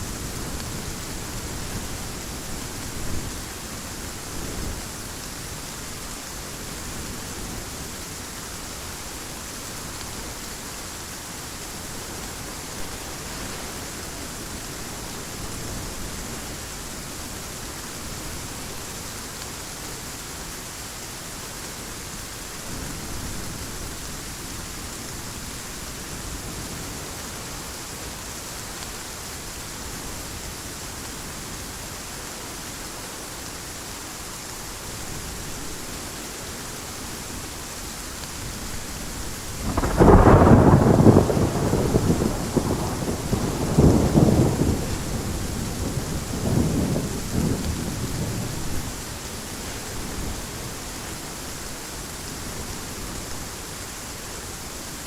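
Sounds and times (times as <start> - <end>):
heavy rain: 0.0 - 55.0
thunder crack and rumble: 39.6 - 48.8.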